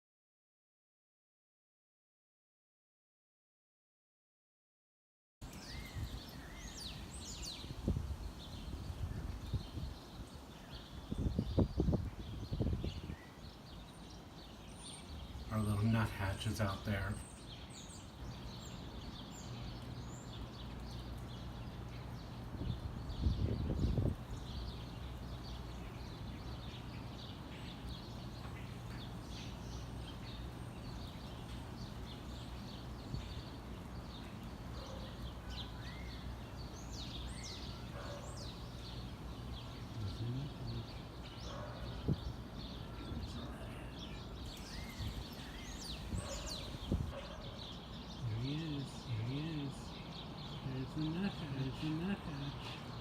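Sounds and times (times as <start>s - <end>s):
songbirds chirping: 5.4s - 53.0s
low background hum: 13.9s - 47.5s.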